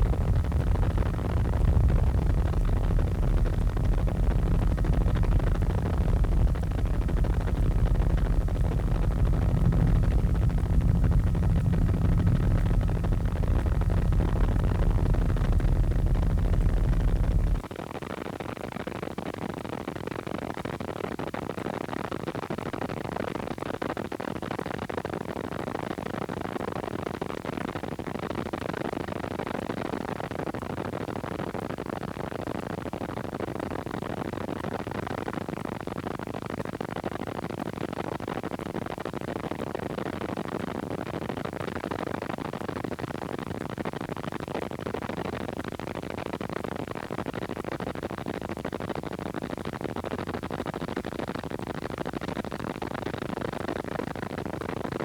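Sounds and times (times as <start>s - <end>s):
helicopter cabin noise: 0.0s - 17.6s.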